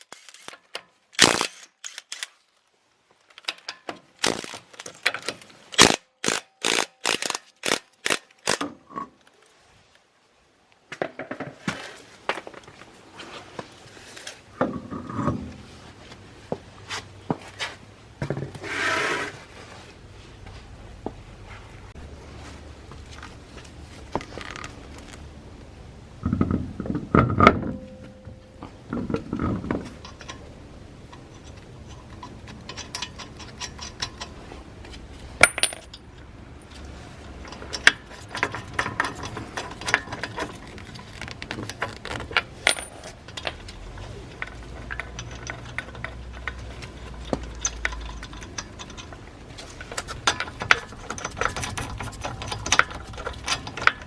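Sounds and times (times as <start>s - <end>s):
tools and lug nuts clinking: 26.2s - 54.0s.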